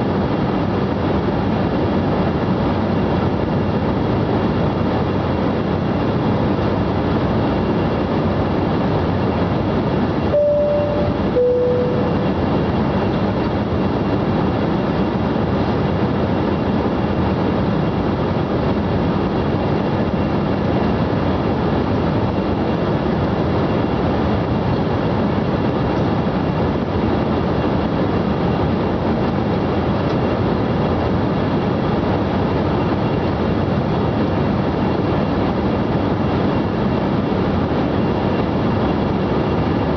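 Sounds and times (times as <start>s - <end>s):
airliner cabin noise: 0.2s - 39.9s
two-note cabin chime: 10.3s - 12.5s.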